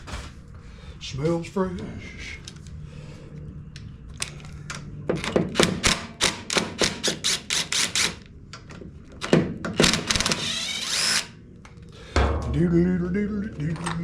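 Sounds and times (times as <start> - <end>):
low hum: 11.4 - 14.0.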